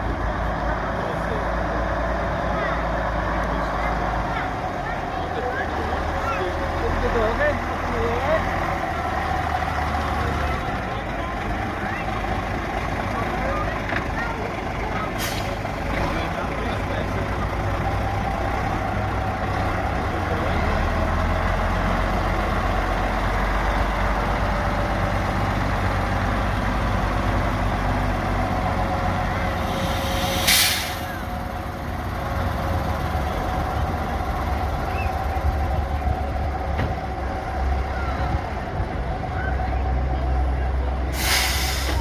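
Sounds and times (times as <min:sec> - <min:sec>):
truck engines running: 0:00.0 - 0:42.0
air brake hiss: 0:15.2 - 0:15.6, 0:29.7 - 0:31.2, 0:41.1 - 0:42.0.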